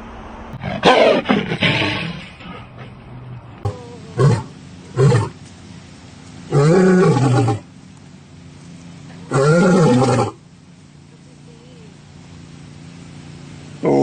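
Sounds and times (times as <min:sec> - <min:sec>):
big cat roaring: 0:00.6 - 0:02.7, 0:03.6 - 0:05.4, 0:06.5 - 0:07.6, 0:09.3 - 0:10.4, 0:13.8 - 0:14.0.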